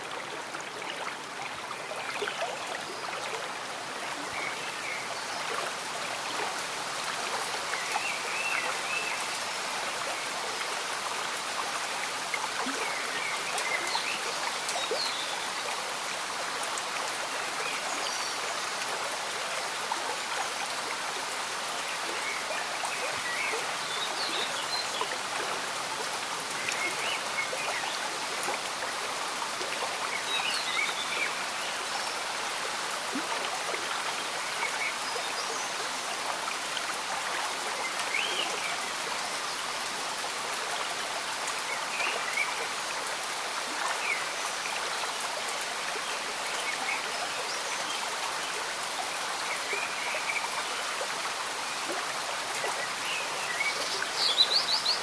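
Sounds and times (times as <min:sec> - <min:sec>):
stream bubbling: 0:00.0 - 0:18.2
gentle rain: 0:00.0 - 0:55.0.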